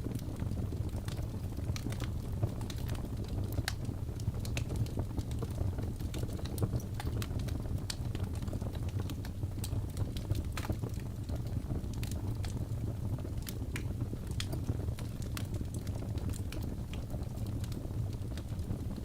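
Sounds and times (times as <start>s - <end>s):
low rumble of flames: 0.0s - 19.0s
wood crackling and popping: 0.0s - 19.0s.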